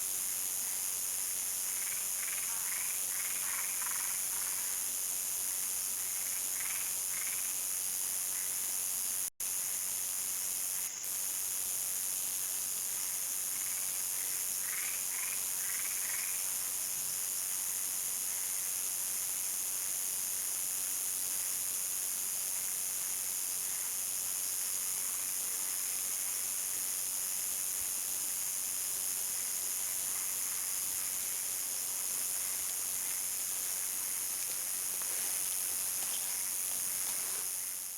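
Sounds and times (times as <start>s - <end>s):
crickets trilling: 0.1s - 37.9s.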